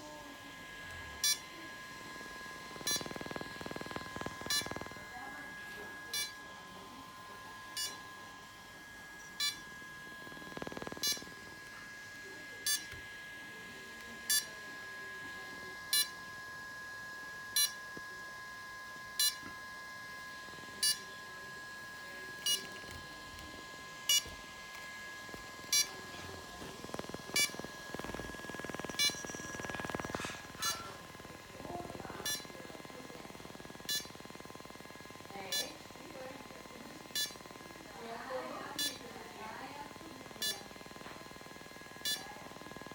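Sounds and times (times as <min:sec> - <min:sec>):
short electronic beeps: 0:02.8 - 0:03.3.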